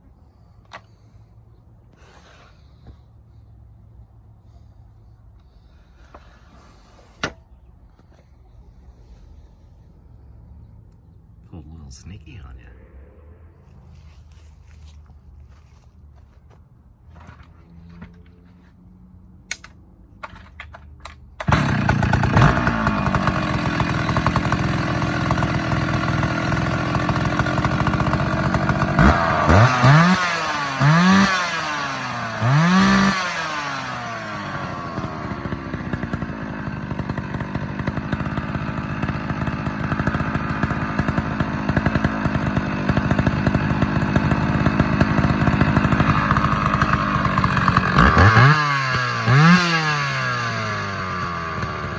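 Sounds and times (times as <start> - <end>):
chainsaw starter clicks: 19.5 - 51.9
chainsaw starting and revving: 21.4 - 51.9.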